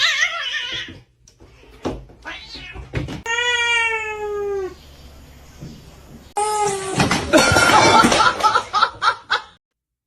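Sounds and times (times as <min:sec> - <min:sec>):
cat meowing: 0:02.2 - 0:04.8.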